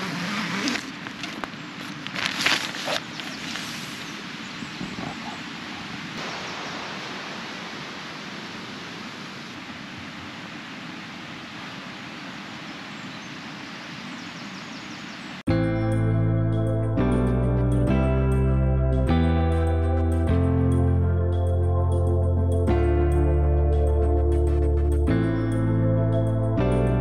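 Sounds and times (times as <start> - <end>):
stream rushing: 2.2 - 14.1.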